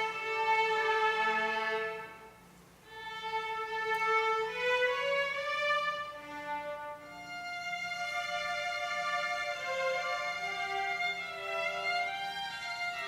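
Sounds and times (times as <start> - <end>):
violin playing slow notes: 0.0 - 13.0.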